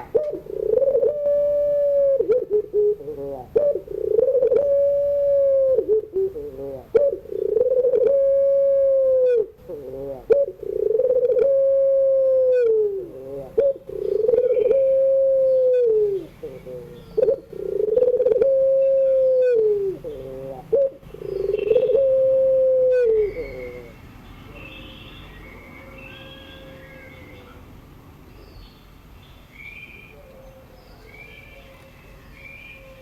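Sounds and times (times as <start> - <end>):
dove cooing: 0.0 - 24.1.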